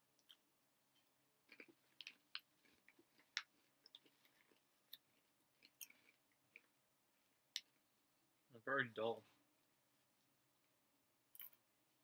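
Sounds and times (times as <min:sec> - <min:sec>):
chewing crunchy popcorn: 0:01.4 - 0:06.8.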